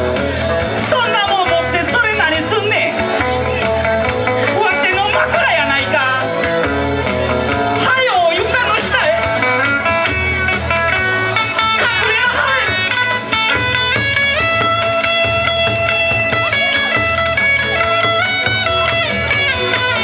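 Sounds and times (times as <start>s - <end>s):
electric guitar melody: 0.0s - 20.0s
steady beat: 0.0s - 20.0s.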